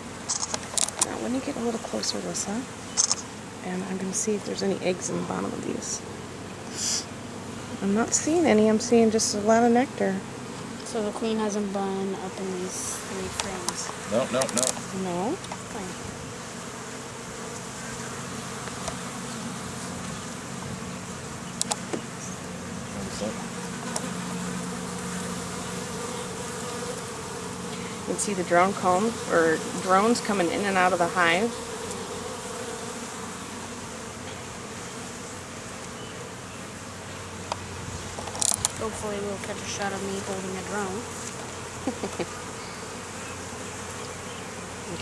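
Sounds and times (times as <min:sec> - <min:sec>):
bees buzzing: 0:00.0 - 0:45.0
sharp clicks: 0:00.3 - 0:01.1, 0:03.0 - 0:03.2, 0:21.6 - 0:21.9.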